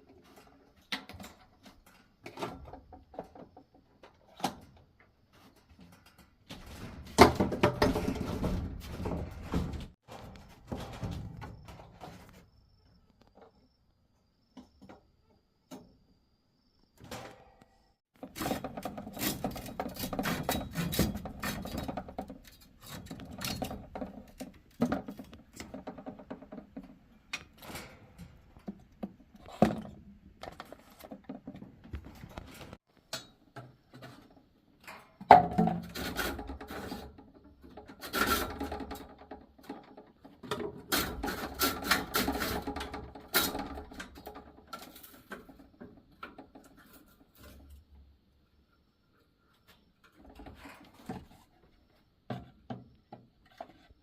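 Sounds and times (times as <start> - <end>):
knocking and scraping of handled objects: 0.0 - 13.8, 17.0 - 48.2, 49.2 - 54.0.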